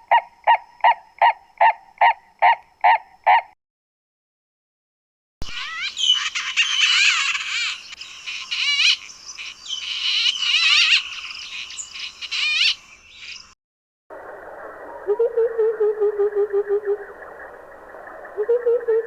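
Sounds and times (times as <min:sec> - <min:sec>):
birds singing trills: 0:05.5 - 0:13.6.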